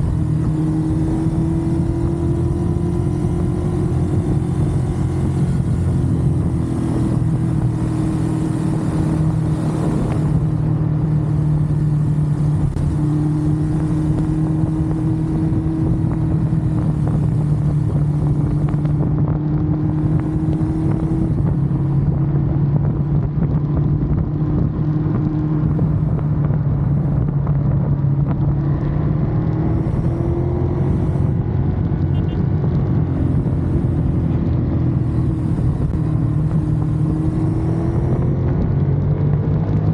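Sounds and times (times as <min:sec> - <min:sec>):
motorcycle engine cruising: 0:00.0 - 0:39.9
steady rushing noise: 0:00.0 - 0:39.9.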